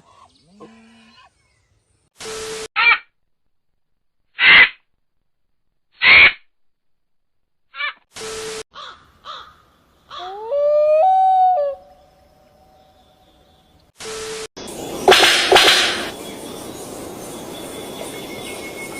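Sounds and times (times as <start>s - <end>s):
bird cawing: 8.7s - 10.4s
bird call rising in pitch: 10.2s - 13.6s.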